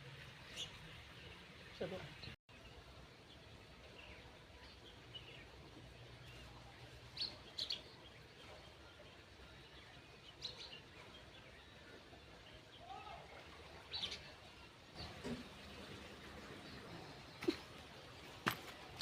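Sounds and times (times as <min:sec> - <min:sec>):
faint outdoor background: 0:00.0 - 0:19.0.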